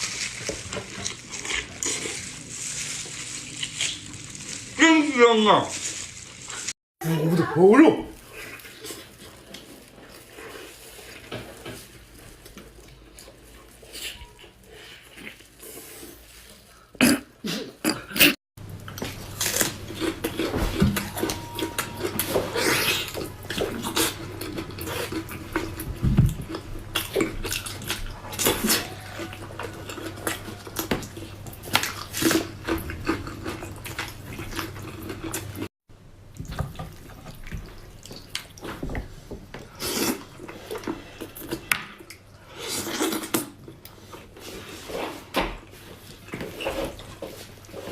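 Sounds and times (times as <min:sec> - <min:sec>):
wet chewing and mouth smacking: 0:18.7 - 0:35.7, 0:36.3 - 0:38.8.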